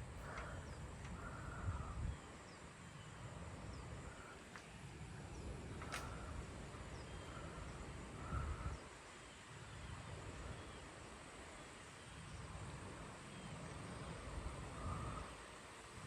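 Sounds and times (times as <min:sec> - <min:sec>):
storm wind on microphone: 0:00.0 - 0:02.5.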